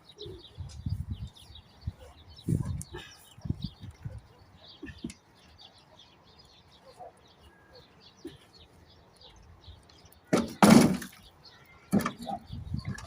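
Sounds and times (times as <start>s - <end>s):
small bird chirping: 0.0s - 10.3s.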